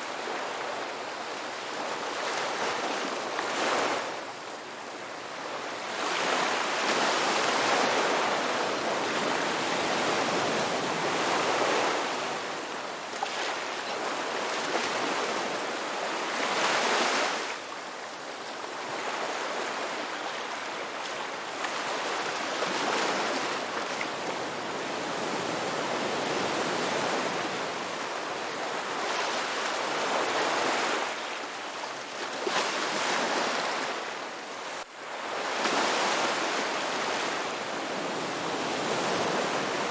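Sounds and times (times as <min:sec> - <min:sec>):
ocean waves breaking on beach: 0:04.9 - 0:39.9.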